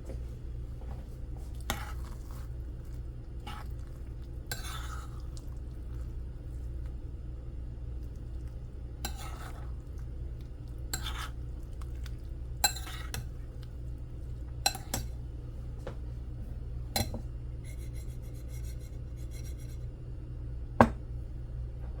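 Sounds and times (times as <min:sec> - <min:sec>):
steady low hum: 0:00.0 - 0:22.0
spoon scraping a dish: 0:01.4 - 0:06.1, 0:09.0 - 0:10.0, 0:10.7 - 0:13.5, 0:14.6 - 0:15.2, 0:17.0 - 0:19.9.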